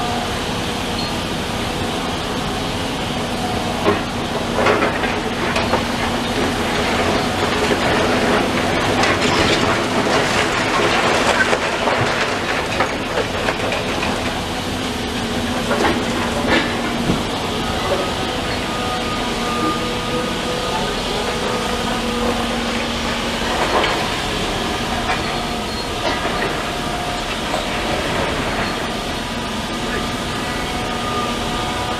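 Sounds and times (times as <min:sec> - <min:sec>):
heavy demolition machinery running: 0:00.0 - 0:31.9
debris crunching and clattering: 0:04.6 - 0:14.5, 0:15.2 - 0:18.6.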